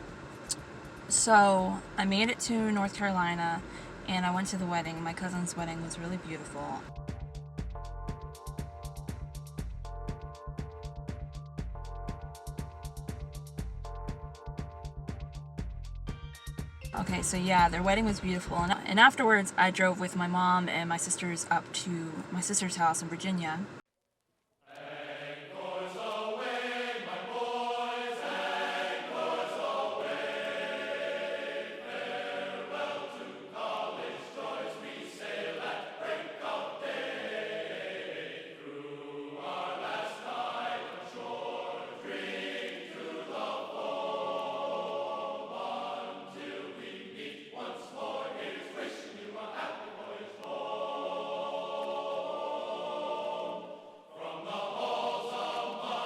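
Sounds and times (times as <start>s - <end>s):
choral chant singing: 0.0s - 7.0s, 17.0s - 21.5s, 24.7s - 56.0s.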